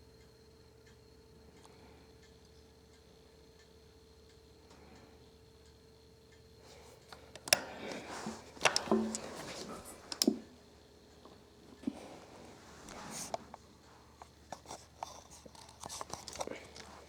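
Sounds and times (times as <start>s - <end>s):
faint steady hum: 0.0s - 17.0s
fan handling knocks and rubbing: 7.5s - 10.5s.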